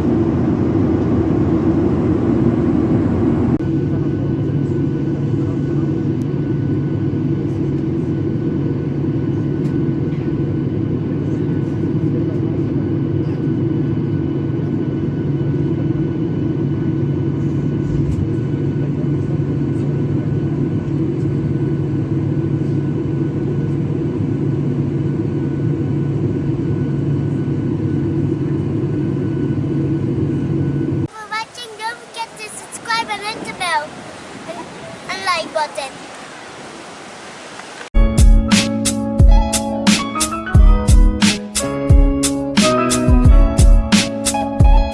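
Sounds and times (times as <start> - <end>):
faint whines: 0.0 - 7.6
airliner cabin drone: 0.0 - 36.2, 37.8 - 44.9.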